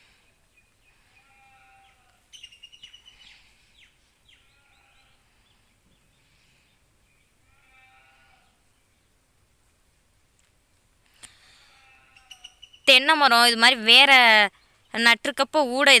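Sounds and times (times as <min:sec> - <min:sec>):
faint bird calls: 0:00.0 - 0:08.8, 0:11.3 - 0:12.9.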